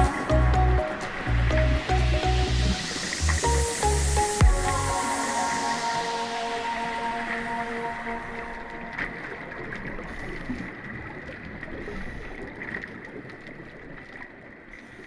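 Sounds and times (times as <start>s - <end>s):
background music: 0.0s - 9.6s
faint high tone: 1.9s - 10.0s.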